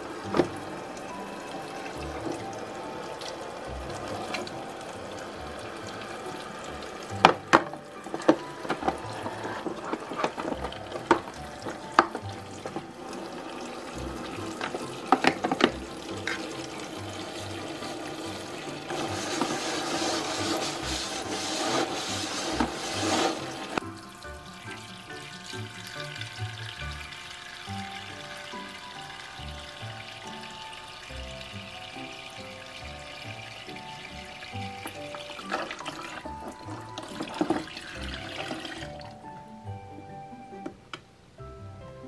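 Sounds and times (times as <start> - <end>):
water running into plastic basin: 0.0 - 39.3
quiet background music: 0.0 - 42.0
splashing and rubbing: 8.1 - 12.9, 18.8 - 23.8
plastic toy dishes clicking: 14.6 - 16.6.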